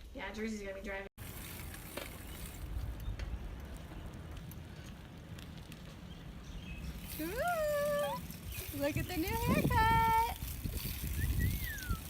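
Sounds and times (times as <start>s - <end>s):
wind noise on microphone: 1.2s - 4.8s, 6.4s - 12.0s.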